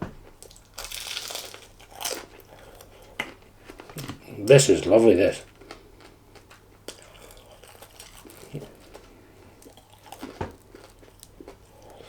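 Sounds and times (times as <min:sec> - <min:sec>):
person chewing: 0:00.4 - 0:04.2, 0:05.4 - 0:12.0.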